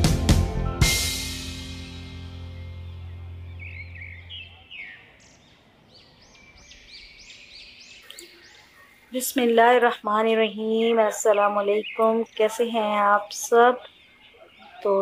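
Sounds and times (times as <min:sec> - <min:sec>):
background music: 0:00.0 - 0:04.5
bird chirping: 0:02.0 - 0:15.0.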